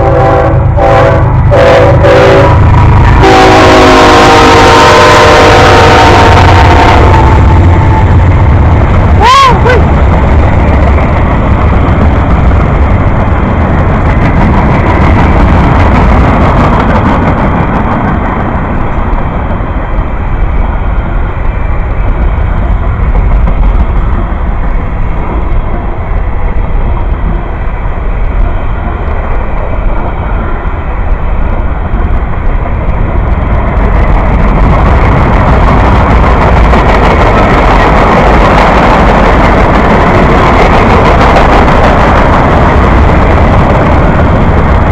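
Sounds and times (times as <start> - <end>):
train passing: 0.0 - 44.9.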